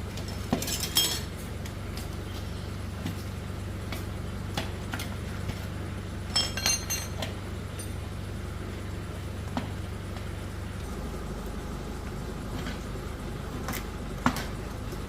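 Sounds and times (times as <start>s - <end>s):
steady low hum: 0.0s - 15.0s
metal tools clinking: 0.2s - 1.3s, 6.3s - 8.0s.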